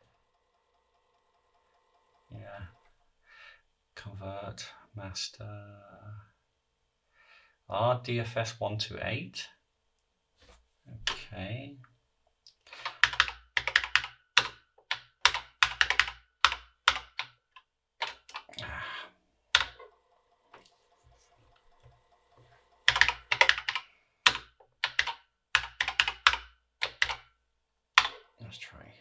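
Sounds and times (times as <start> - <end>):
faint steady hum: 0.0 - 29.0
computer keyboard typing: 12.8 - 17.4, 18.0 - 18.6, 19.5 - 19.9, 22.8 - 27.3, 28.0 - 28.3.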